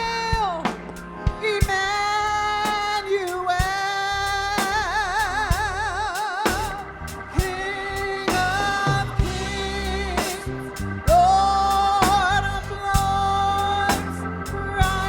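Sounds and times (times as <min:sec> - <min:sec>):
gospel singing: 0:00.0 - 0:15.0
drum and cymbal hits: 0:08.3 - 0:11.3.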